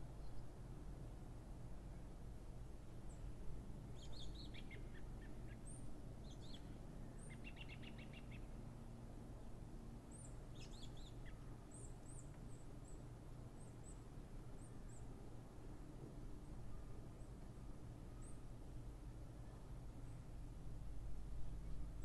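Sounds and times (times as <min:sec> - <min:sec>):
songbird chirps and trills: 0:03.9 - 0:08.6
low background rumble: 0:13.1 - 0:22.0.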